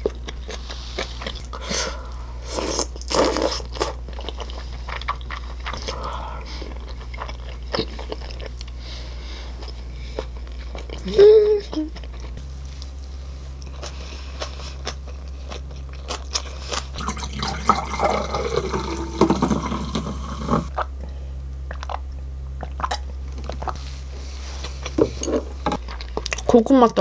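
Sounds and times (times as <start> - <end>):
chewing and crunching food: 0.0 - 27.0
drink poured into a glass: 17.0 - 20.7.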